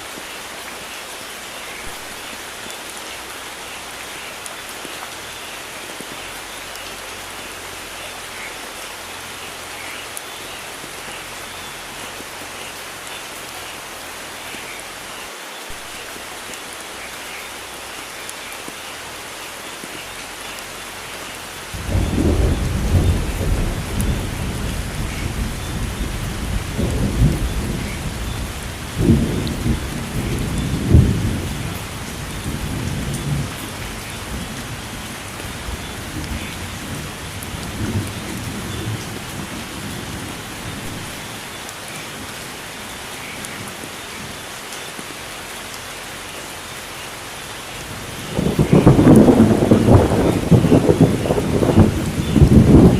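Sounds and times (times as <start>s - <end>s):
heavy rain hissing: 0.0s - 52.9s
thunder rumbling: 21.8s - 41.4s, 47.8s - 52.9s.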